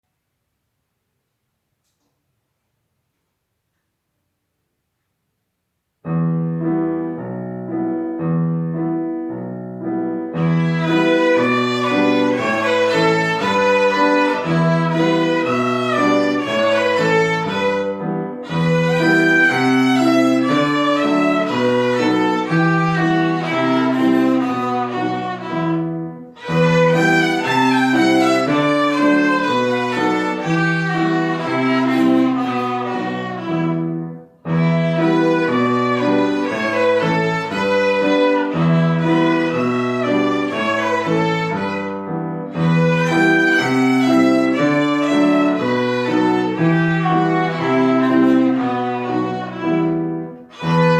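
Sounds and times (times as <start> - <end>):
piano accompaniment: 6.0 - 50.9
violins playing: 10.3 - 50.9.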